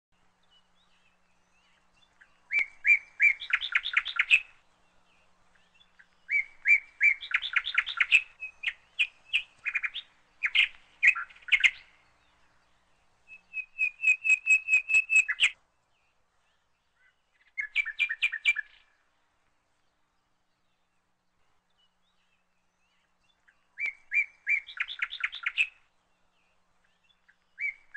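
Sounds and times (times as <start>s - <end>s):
songbird singing: 0.1s - 27.9s.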